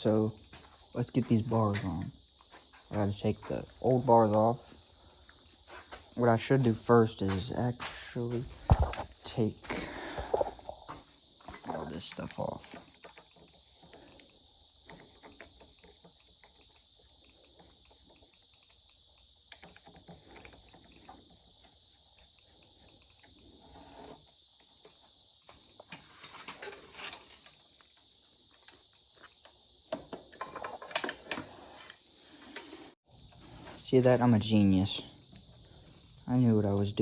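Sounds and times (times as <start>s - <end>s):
crickets chirping: 0.0s - 37.0s
hand tools clicking on metal: 11.6s - 21.2s.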